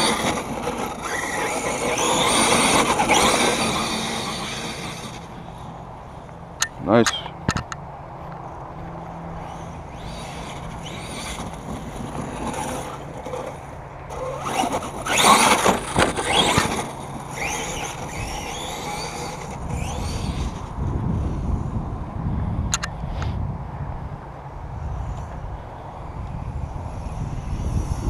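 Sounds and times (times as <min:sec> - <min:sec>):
toy truck motor whining: 0:00.0 - 0:05.6, 0:09.4 - 0:20.7
tyres squealing and scrubbing: 0:14.2 - 0:20.4.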